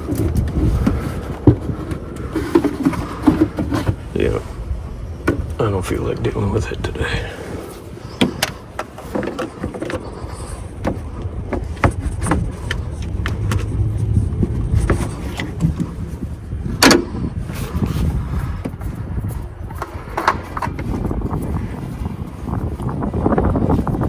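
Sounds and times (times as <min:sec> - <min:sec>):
low rumble: 0:10.0 - 0:24.0.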